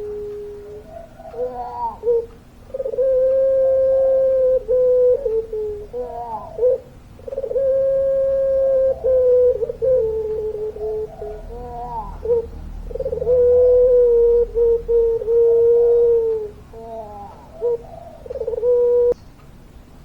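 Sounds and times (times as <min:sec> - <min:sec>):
dove cooing: 0:00.0 - 0:19.2.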